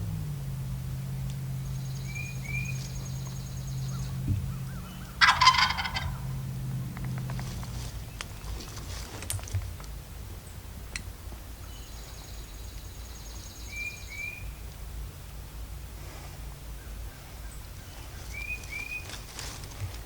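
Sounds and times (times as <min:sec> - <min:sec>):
steady low hum: 0:00.0 - 0:20.0
turkey gobbling: 0:04.0 - 0:06.4.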